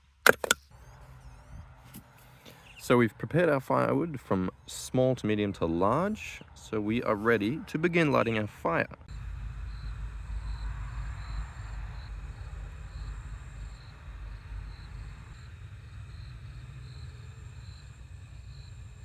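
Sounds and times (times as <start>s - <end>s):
steady low rumble: 9.0s - 19.0s
crickets chirping: 9.1s - 19.0s.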